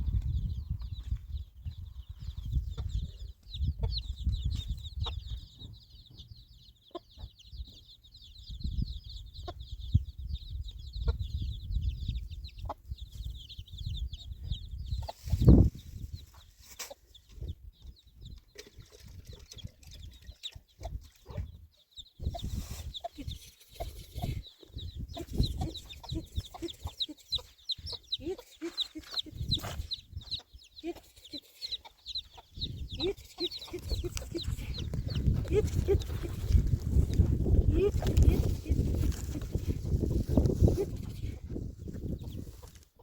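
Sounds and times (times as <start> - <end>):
chickens clucking: 1.6 - 8.1, 8.7 - 43.0
rapid high-pitched chirping: 22.0 - 39.0.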